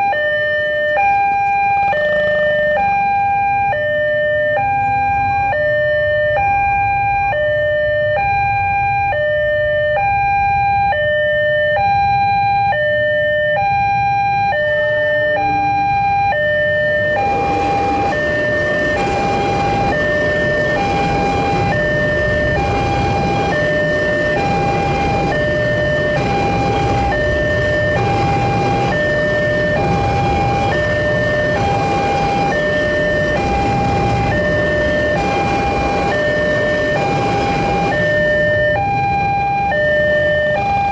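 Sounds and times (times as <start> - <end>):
level crossing alarm two-note tone: 0.0 - 40.9
train passing rushing noise: 0.7 - 3.2, 13.7 - 40.9.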